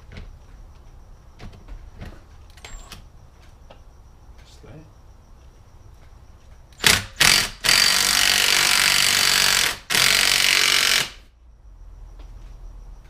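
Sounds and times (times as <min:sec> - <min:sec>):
impact wrench running: 0:06.8 - 0:11.2.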